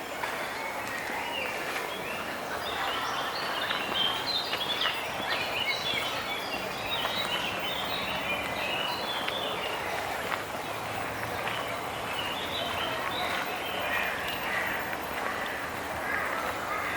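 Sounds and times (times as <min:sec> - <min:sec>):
outdoor background hiss: 0:00.0 - 0:16.9
small birds chirping: 0:00.8 - 0:16.9.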